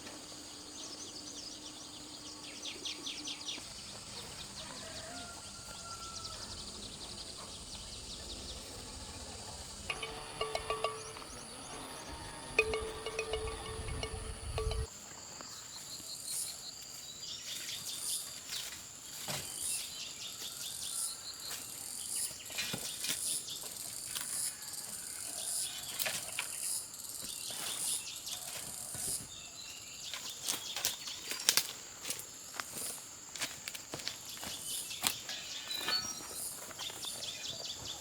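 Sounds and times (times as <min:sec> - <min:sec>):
high-pitched insect drone: 0:07.6 - 0:14.9.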